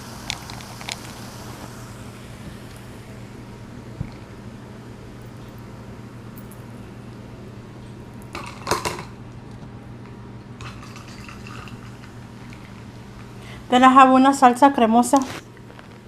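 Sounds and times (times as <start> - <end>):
steady low hum: 0.0 - 16.0
dishes and utensils clattering: 8.4 - 9.2, 10.6 - 12.7.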